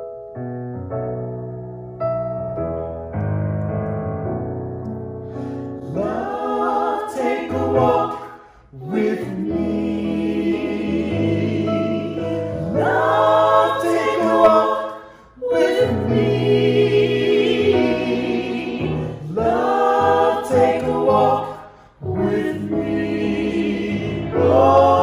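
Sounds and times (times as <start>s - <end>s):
choir singing church music: 5.2s - 25.0s.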